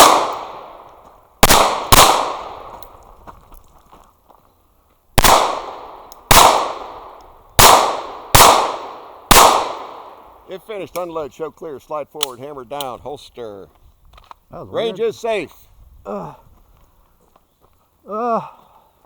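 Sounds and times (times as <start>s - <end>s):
pistol shots with echo: 0.0s - 2.7s, 5.2s - 10.3s.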